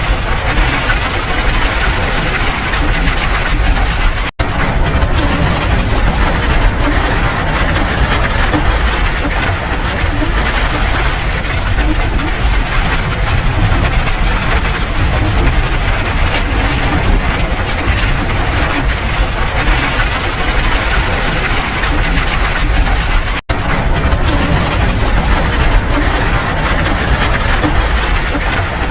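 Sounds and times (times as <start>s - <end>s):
dense rain: 0.0s - 28.9s
deep low rumble: 1.4s - 28.9s.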